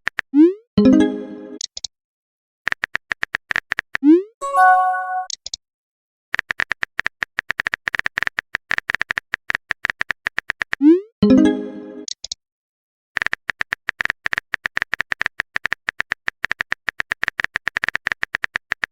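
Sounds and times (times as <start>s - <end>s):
brief chime: 4.4s - 5.3s.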